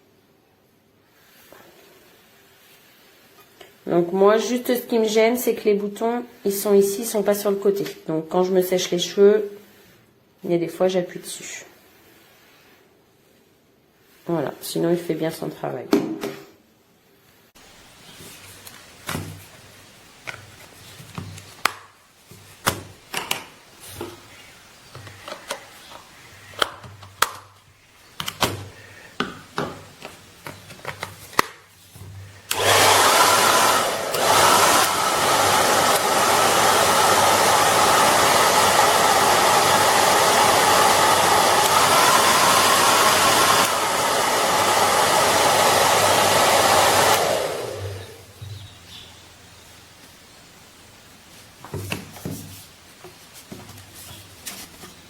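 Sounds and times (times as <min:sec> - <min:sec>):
hair dryer blowing: 0:32.4 - 0:48.4.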